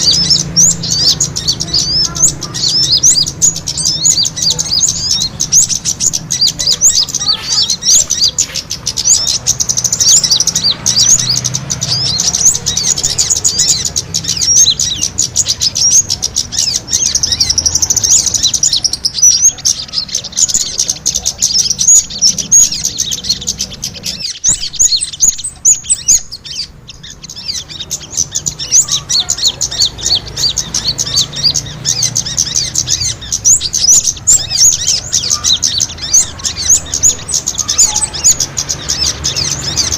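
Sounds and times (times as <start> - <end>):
small birds chirping rapidly: 0.0 - 39.9.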